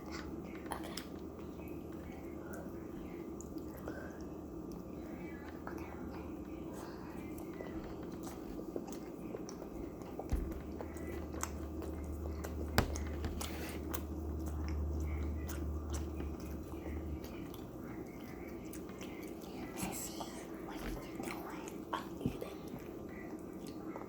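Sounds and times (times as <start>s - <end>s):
low hum: 0.0s - 20.3s
person chewing food: 0.0s - 24.0s.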